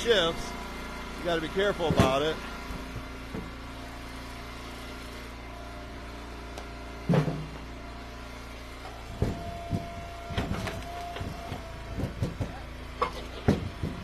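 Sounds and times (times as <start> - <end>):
log splitter engine running: 0.0 - 14.0
log splitting crack: 9.1 - 12.5.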